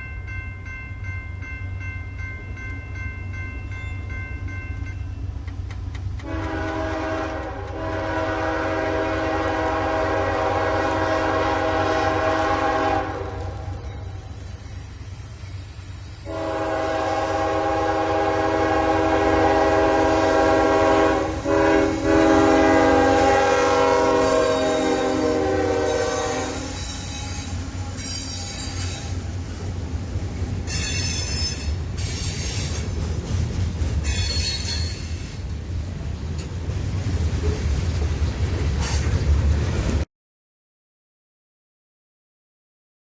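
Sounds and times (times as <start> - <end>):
passing train rumble: 0.0 - 40.1
locomotive air horn: 6.2 - 13.8, 16.2 - 29.1.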